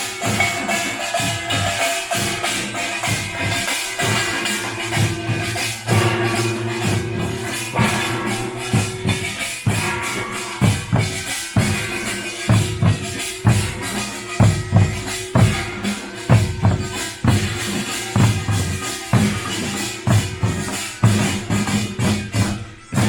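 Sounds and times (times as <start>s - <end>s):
clanging metal percussion: 0.0s - 23.0s
held ringing tone: 0.1s - 23.0s
deep drum strokes: 4.7s - 19.4s.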